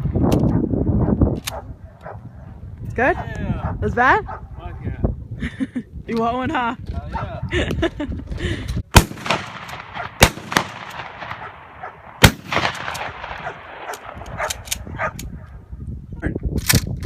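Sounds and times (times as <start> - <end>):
gunshots with echo: 8.9 - 14.6.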